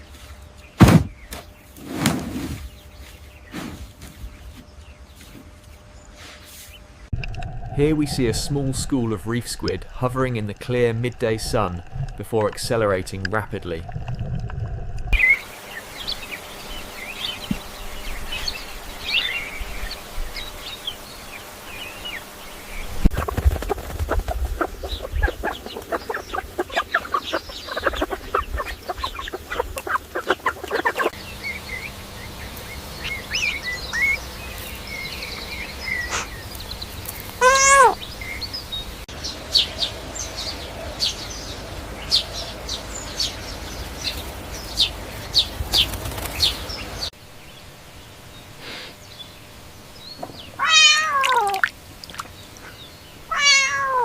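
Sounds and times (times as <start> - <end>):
chickens chirping and clucking: 23.0 - 38.5
chicken squawk: 23.2 - 31.2, 37.4 - 38.0, 50.6 - 51.6, 53.3 - 54.0.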